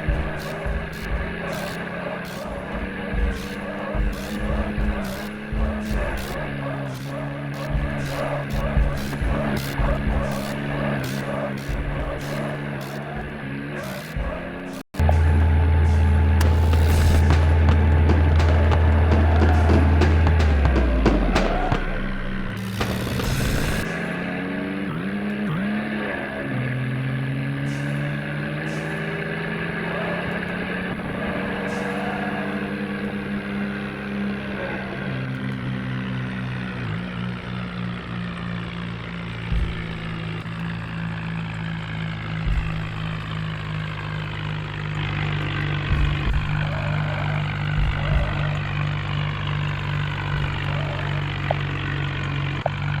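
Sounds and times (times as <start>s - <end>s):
short low thumps: 0.0s - 1.6s, 2.5s - 11.1s, 11.7s - 13.4s, 14.1s - 24.0s, 42.4s - 43.4s, 47.6s - 51.6s
bulldozer diesel engine: 0.0s - 53.0s.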